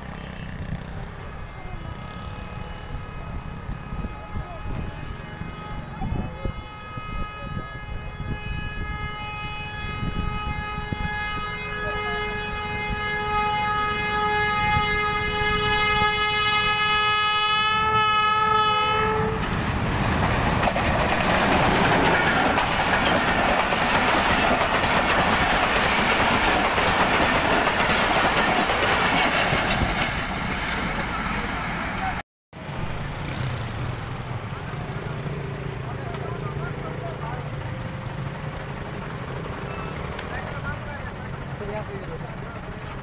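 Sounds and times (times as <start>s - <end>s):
locomotive horn blast: 0.0s - 19.6s
train rumbling past: 0.0s - 43.0s.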